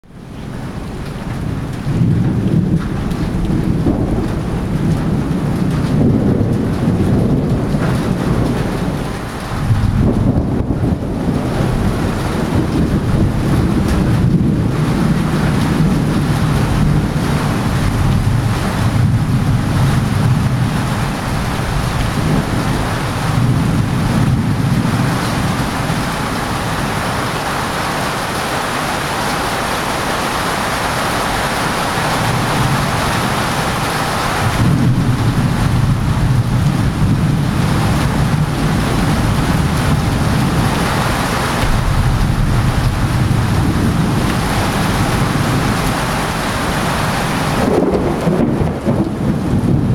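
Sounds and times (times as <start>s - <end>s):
steady rain: 0.0s - 49.9s
wind: 0.0s - 49.9s
low thunder rumble: 0.2s - 49.9s.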